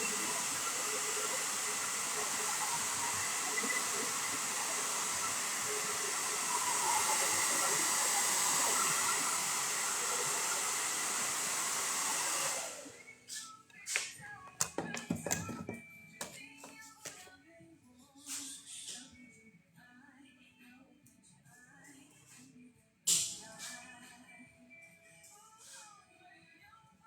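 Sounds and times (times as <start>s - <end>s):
hair dryer blowing: 0.0s - 13.2s.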